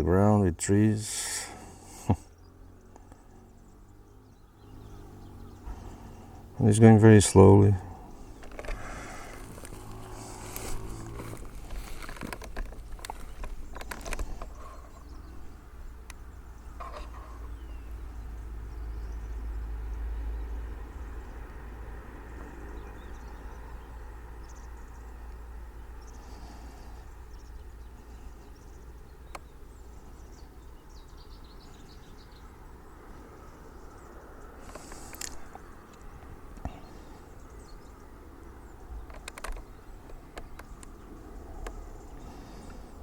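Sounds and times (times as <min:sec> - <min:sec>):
sharp clicks: 0:39.0 - 0:41.0.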